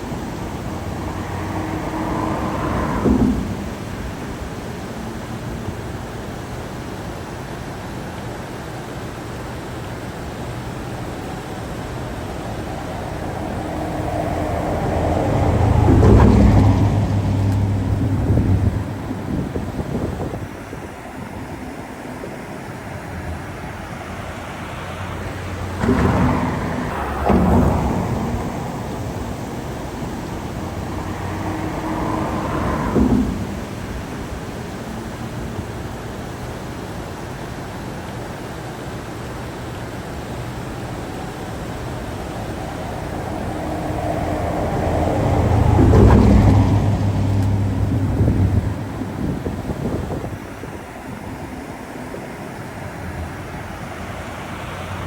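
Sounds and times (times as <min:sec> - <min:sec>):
motor vehicle passing by: 0:00.0 - 0:06.1, 0:10.3 - 0:36.0, 0:40.4 - 0:55.0
rushing river water: 0:00.0 - 0:55.0.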